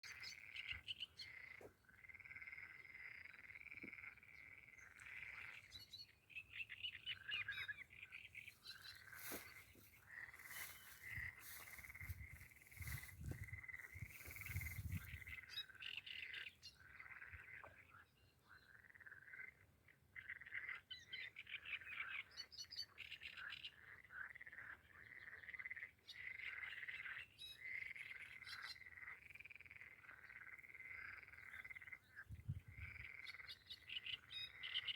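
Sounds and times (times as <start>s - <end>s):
frogs calling: 0.0s - 34.9s
wind on microphone: 11.1s - 15.4s, 32.2s - 33.1s.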